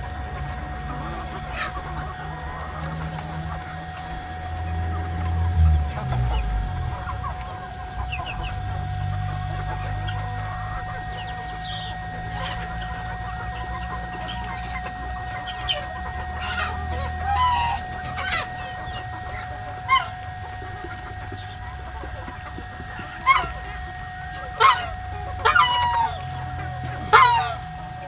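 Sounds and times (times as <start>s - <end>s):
chickens clucking: 0.0s - 28.0s
faint steady tone: 0.0s - 28.0s.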